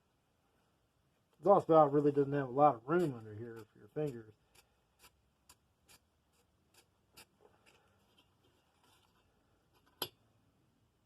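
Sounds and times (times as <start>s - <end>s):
emery paper scratching metal: 1.8s - 9.4s.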